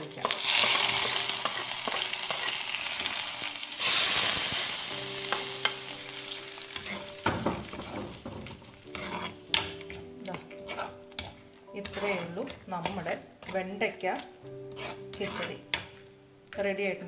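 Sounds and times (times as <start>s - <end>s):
oil tempering sizzling: 0.0s - 13.5s
spoon clicking on pan: 0.2s - 3.2s, 3.9s - 6.2s.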